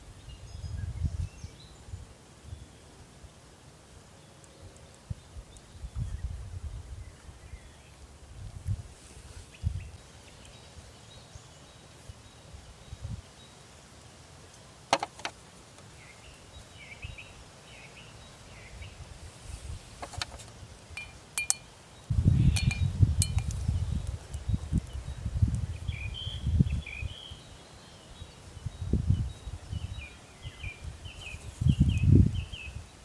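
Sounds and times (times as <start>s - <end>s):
wind buffeting microphone: 0.0s - 2.6s, 5.1s - 10.0s, 18.7s - 27.5s, 28.2s - 33.0s
sharp clicks or taps: 14.9s - 15.3s
faint bird chirps: 20.9s - 32.8s.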